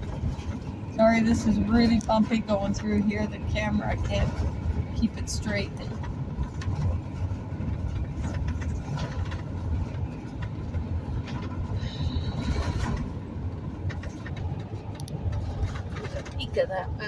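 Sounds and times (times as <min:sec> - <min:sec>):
knocks and rattles: 0:00.0 - 0:17.0
road rumble inside vehicle: 0:00.0 - 0:17.0.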